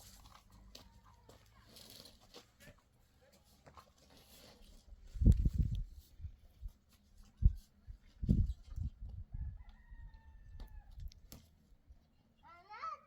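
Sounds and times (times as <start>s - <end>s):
rooster crowing: 9.3s - 10.9s.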